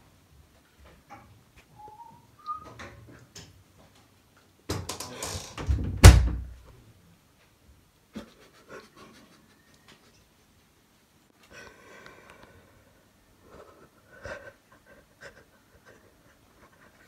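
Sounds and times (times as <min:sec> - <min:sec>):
faint clicks: 0:11.4 - 0:12.6.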